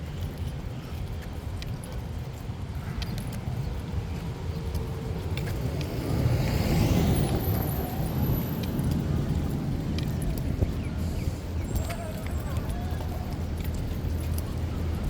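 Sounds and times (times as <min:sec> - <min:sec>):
low rumble of traffic: 0:00.0 - 0:15.0
car passing by: 0:05.4 - 0:10.2.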